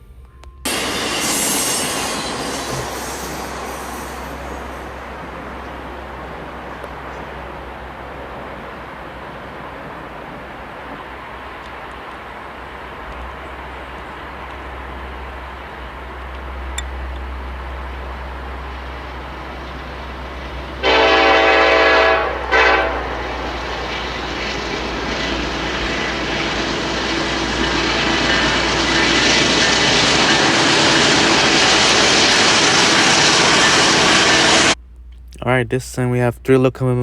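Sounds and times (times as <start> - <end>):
train rumble: 0.0 - 37.0
locomotive air horn: 20.7 - 24.2.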